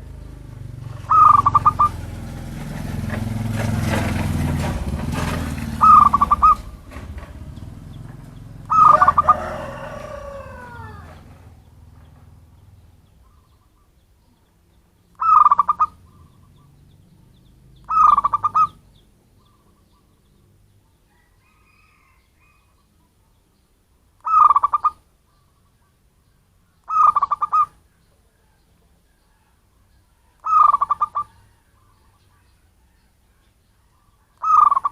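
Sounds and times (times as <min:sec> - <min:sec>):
dove cooing trill: 0:00.0 - 0:02.3, 0:04.6 - 0:14.0, 0:15.2 - 0:20.2, 0:24.2 - 0:25.0, 0:26.8 - 0:28.6, 0:30.2 - 0:32.2, 0:34.0 - 0:34.9
low rumble: 0:02.2 - 0:08.8.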